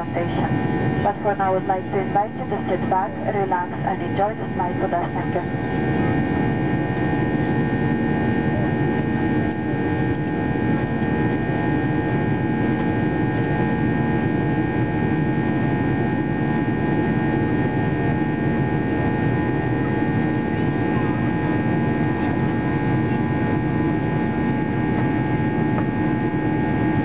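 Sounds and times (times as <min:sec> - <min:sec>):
steady tones: 0:00.0 - 0:05.5
jet engines humming: 0:00.0 - 0:14.0.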